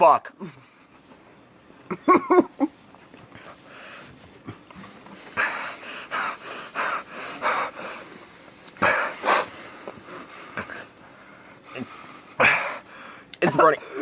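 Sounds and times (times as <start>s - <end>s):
person breathing forcefully: 3.3s - 14.0s.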